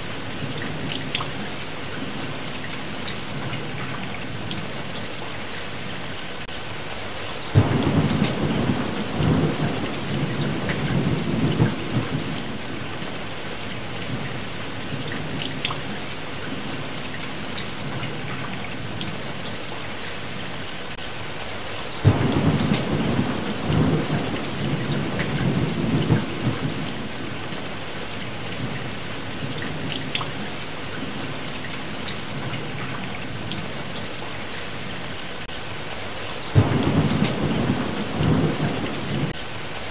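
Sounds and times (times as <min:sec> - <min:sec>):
steady rain: 0:00.0 - 0:39.9
thunder rumbling: 0:07.5 - 0:13.2, 0:22.0 - 0:27.6, 0:36.6 - 0:39.4.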